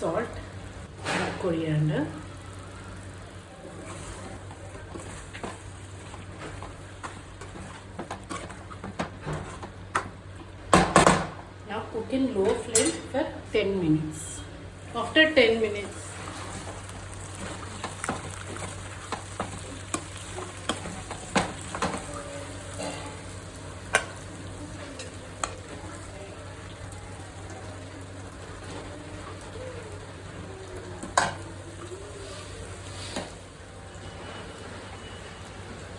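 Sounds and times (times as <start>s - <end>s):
chicken sizzling in a pan: 14.8s - 35.9s.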